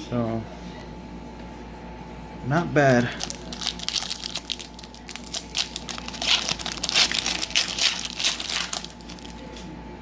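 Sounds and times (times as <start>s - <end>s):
plastic wrapper crinkling: 3.0s - 9.7s.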